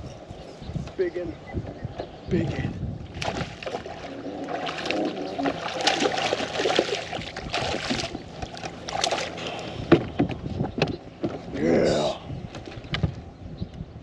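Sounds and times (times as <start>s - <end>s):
fish thrashing water splashing: 3.1s - 9.4s.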